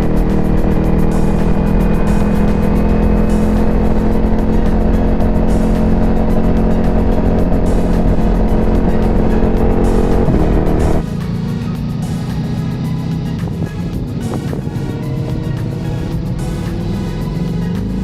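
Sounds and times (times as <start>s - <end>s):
motorcycle engine cruising: 0.0s - 18.0s
wind noise: 12.0s - 17.4s.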